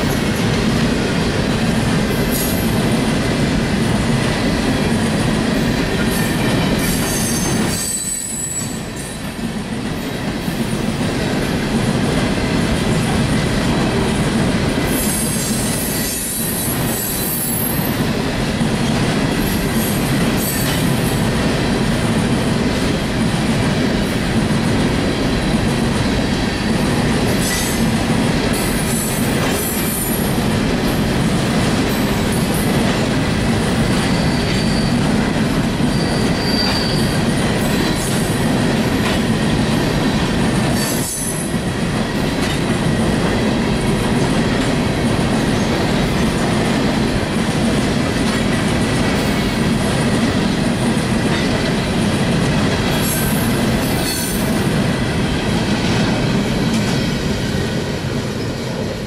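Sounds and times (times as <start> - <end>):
train wheels rumbling on rails: 0.0 - 59.0
wheel squeal: 7.0 - 8.9, 34.0 - 35.0, 35.9 - 37.2.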